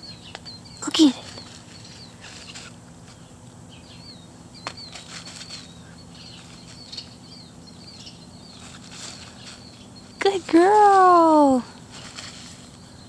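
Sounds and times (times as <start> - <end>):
small birds chirping: 0.0 - 13.0
soft rustles: 1.0 - 3.2, 4.7 - 7.1, 8.4 - 13.0.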